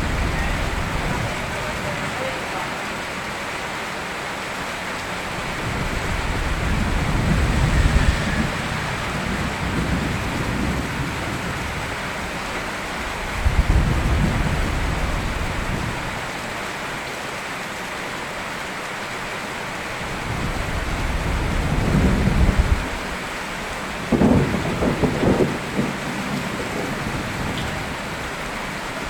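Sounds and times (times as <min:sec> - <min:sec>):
thunder rumbling: 0:00.0 - 0:02.6, 0:05.1 - 0:16.3, 0:20.1 - 0:29.0
steady rain: 0:00.0 - 0:29.0
thunder clap: 0:05.4 - 0:12.5, 0:24.0 - 0:28.2.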